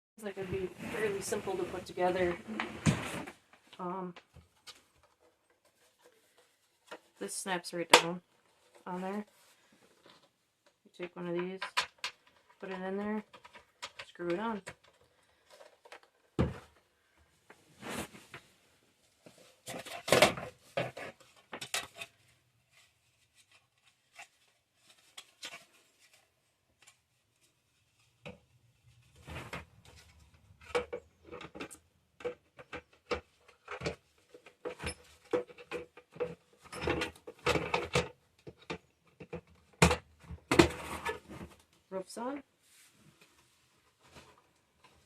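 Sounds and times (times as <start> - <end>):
plastic parts clicking and rattling: 9.9 - 16.9, 19.3 - 26.2, 29.2 - 41.7.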